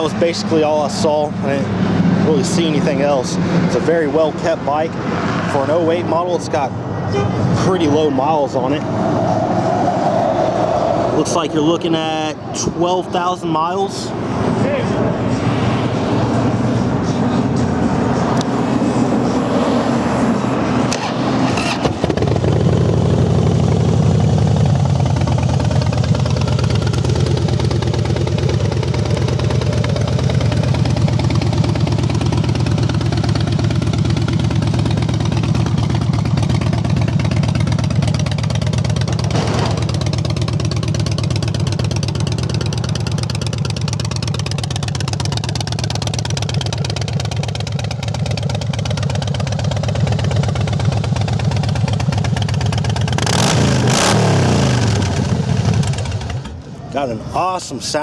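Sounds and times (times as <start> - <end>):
motorcycle engine starting and idling: 16.5 - 57.6.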